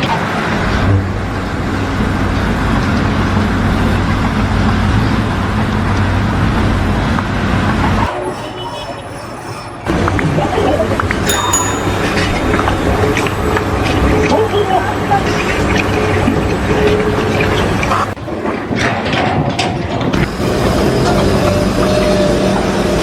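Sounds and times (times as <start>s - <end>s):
thin high tones: 11.3s - 13.9s.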